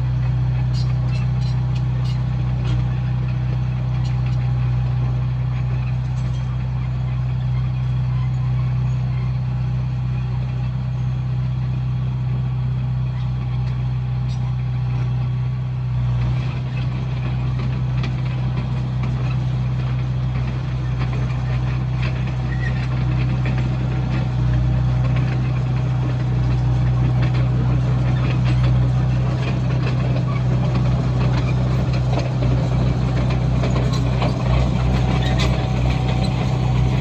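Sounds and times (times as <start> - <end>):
diesel engine running: 0.0 - 37.0
metal clanks and rattles: 20.1 - 37.0.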